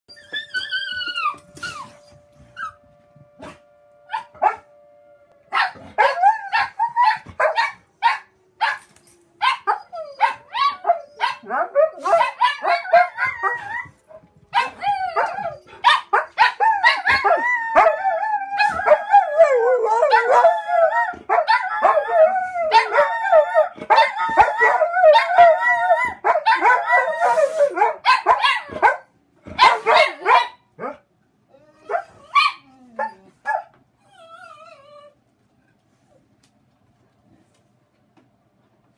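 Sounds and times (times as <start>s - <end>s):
dogs barking and howling: 0.1s - 2.8s, 3.4s - 4.8s, 5.5s - 31.0s, 31.6s - 35.2s
fire alarm steady tone: 0.2s - 5.5s.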